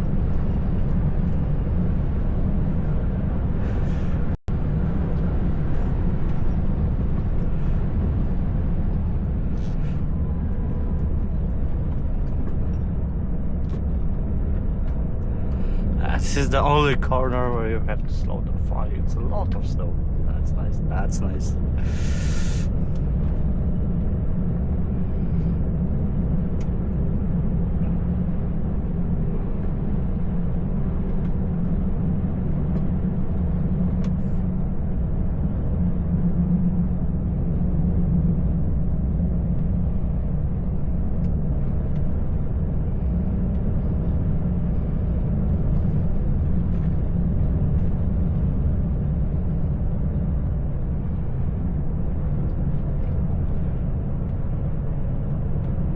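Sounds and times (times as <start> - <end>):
road noise: 0.0 - 55.9
truck diesel engine rumble: 1.5 - 23.6.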